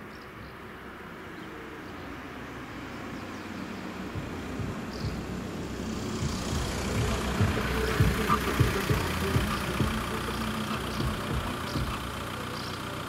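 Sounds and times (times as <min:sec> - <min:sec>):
car engine pulling up and idling: 0:00.0 - 0:13.0.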